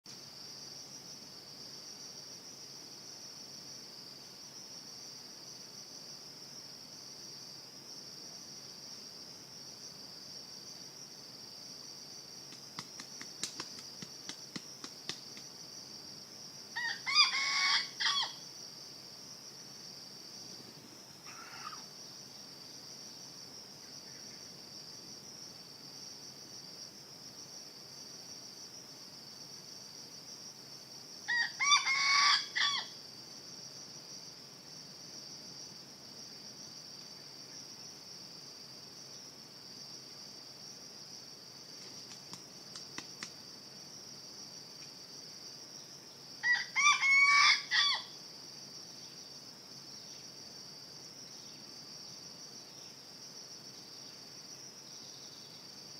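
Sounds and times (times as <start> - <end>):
insects droning: 0.1 - 55.9
rooster crowing: 16.8 - 18.4, 31.3 - 32.9, 46.4 - 48.1.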